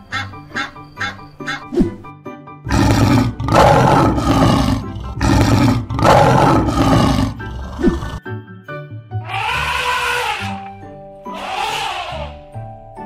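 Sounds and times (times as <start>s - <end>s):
background music: 0.0s - 13.0s
lion roaring: 2.7s - 8.2s.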